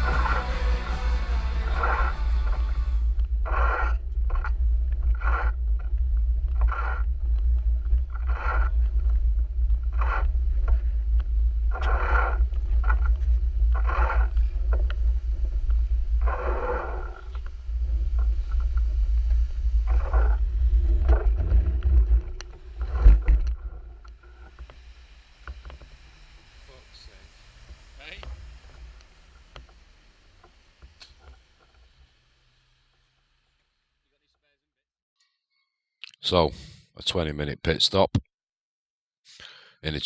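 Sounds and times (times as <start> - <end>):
short scraping bursts: 0.0 - 5.6
wind rumbling on microphone: 0.0 - 24.2.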